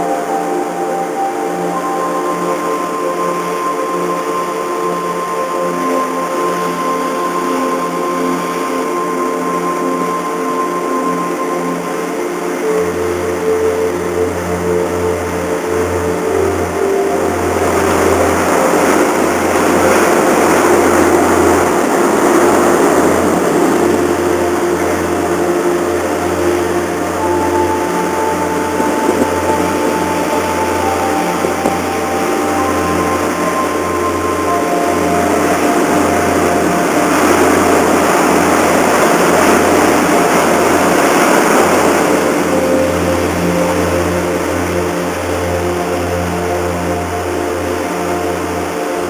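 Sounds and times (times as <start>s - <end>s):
ship engines humming: 0.0s - 49.0s
even rushing noise: 12.1s - 45.9s.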